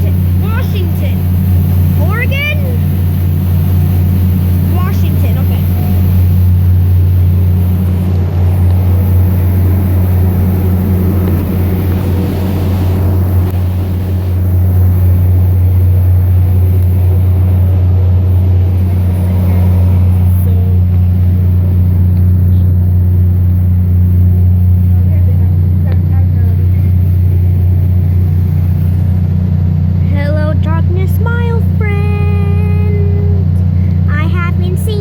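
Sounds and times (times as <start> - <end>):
boat engines droning: 0.0 - 35.0
wind and water noise: 0.0 - 35.0.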